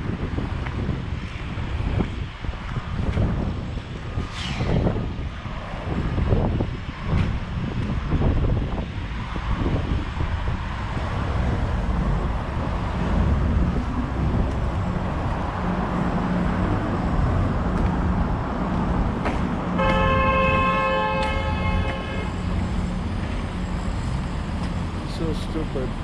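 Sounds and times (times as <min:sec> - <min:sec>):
traffic rumble: 0:00.0 - 0:26.0
vehicle horn blast: 0:19.8 - 0:22.4.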